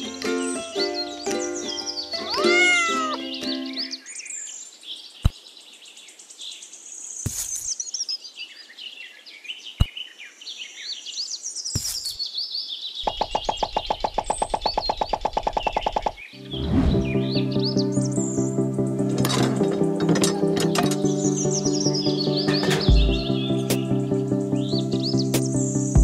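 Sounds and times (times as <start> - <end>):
ukulele music: 0.0 - 4.0, 16.4 - 25.6
high twittering chirps: 0.4 - 4.5, 13.0 - 18.6, 20.4 - 26.0
cat meowing: 2.2 - 3.3.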